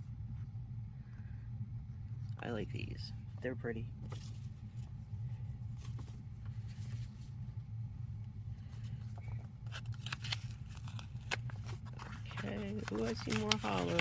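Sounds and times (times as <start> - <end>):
low hum: 0.0 - 14.0
sticker sheets rustling and crinkling: 8.6 - 14.0.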